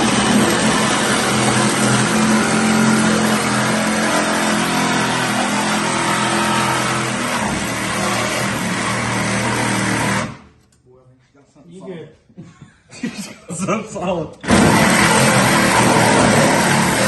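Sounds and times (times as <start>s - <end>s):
power tool cutting sheet metal: 0.0s - 10.5s, 14.4s - 17.0s.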